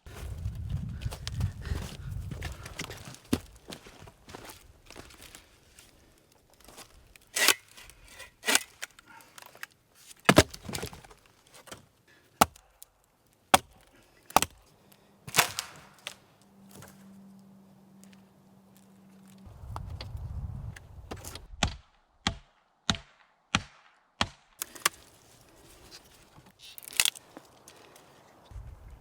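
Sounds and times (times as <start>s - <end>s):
blade chopping wood: 7.4s - 8.9s, 10.2s - 11.8s, 12.4s - 12.6s, 13.5s - 14.6s, 15.3s - 16.2s, 21.1s - 25.1s.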